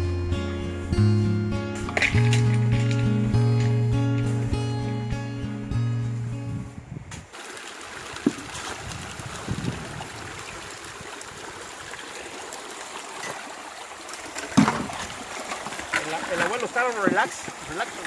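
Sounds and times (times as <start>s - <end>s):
background music: 0.0s - 6.7s
river running: 7.2s - 18.0s.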